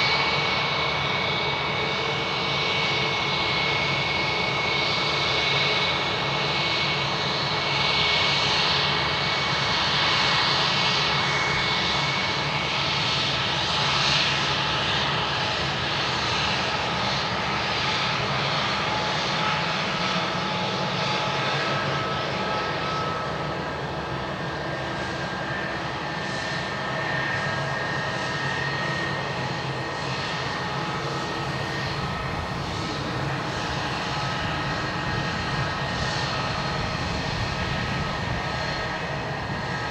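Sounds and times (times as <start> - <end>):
jet engines roaring and whining: 0.0 - 39.9.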